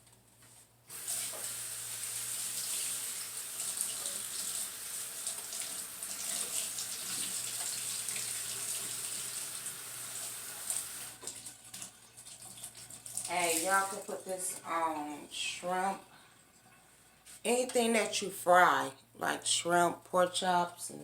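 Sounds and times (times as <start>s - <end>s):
kitchen faucet running into sink: 0.9s - 14.2s.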